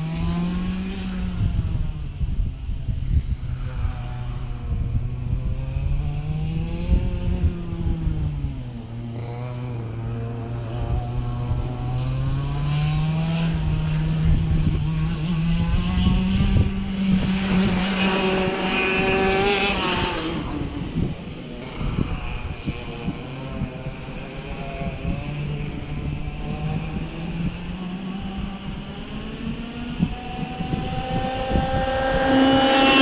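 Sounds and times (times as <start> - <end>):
race car engine passing: 9.2 - 33.0.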